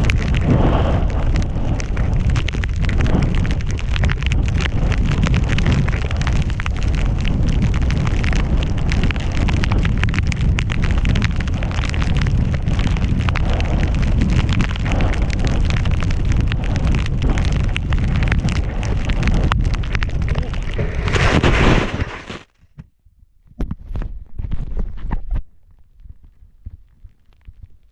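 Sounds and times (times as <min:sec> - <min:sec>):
wind buffeting microphone: 0:00.0 - 0:22.2
snow rushing and crackling: 0:00.0 - 0:22.5.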